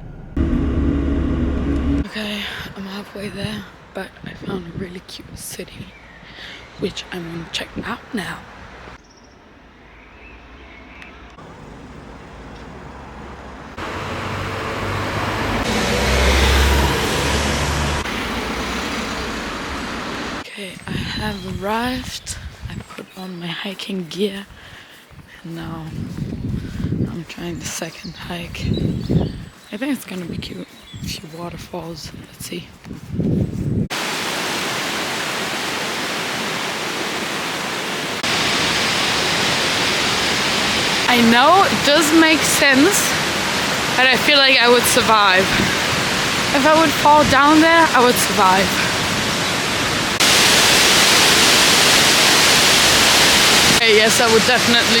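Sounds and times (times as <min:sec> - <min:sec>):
passing cars: 0:00.0 - 0:02.1, 0:11.4 - 0:20.4
waterfall roaring: 0:13.7 - 0:20.4, 0:33.9 - 0:55.0.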